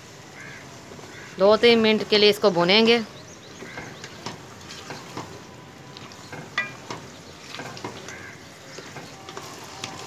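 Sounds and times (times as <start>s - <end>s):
food frying in oil: 0.0s - 10.0s
metal ladle scraping pot: 6.0s - 8.0s.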